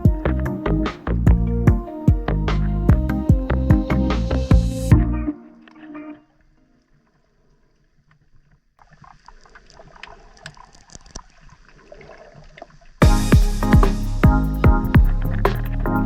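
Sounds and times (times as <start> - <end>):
loud music with steady beat: 0.0 - 5.3, 13.0 - 16.0
faint water sounds: 5.3 - 13.3.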